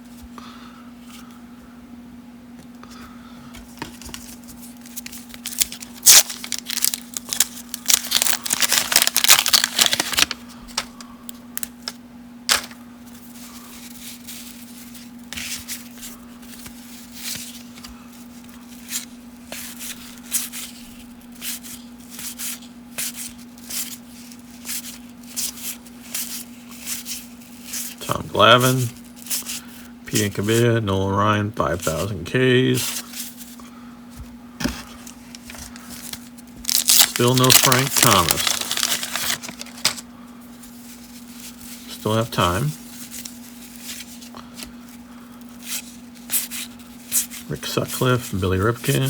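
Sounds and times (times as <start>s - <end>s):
cards clicking and rustling: 3.8s - 11.0s, 11.6s - 12.8s, 34.6s - 40.0s
card pack torn and crinkled: 4.8s - 12.8s, 35.1s - 40.0s.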